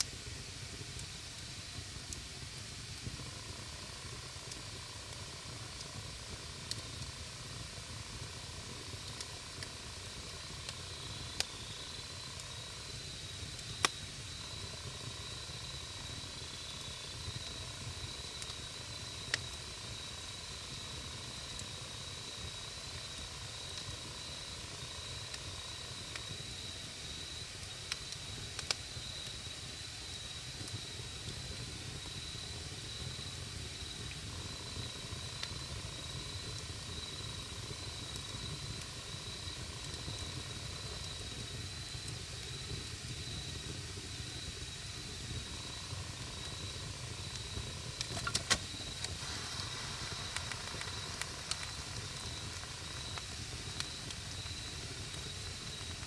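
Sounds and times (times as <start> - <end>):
campfire burning: 0.0 - 56.0
crackling wood pops: 47.3 - 56.0.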